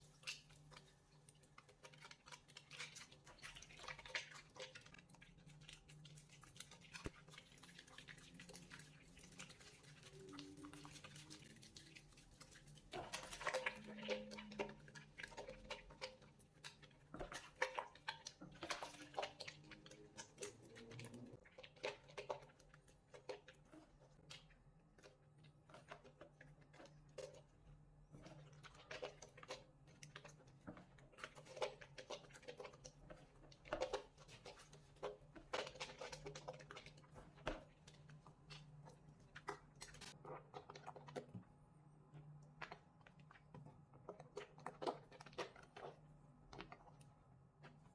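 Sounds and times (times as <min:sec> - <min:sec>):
soap lathering squishing: 0:00.0 - 0:47.9.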